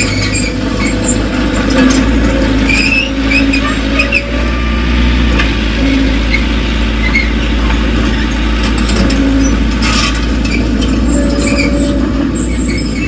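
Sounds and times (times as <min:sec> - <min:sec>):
metal parts squeaking: 0:00.0 - 0:04.6, 0:08.9 - 0:13.0
diesel machine engine rumbling: 0:00.0 - 0:13.0.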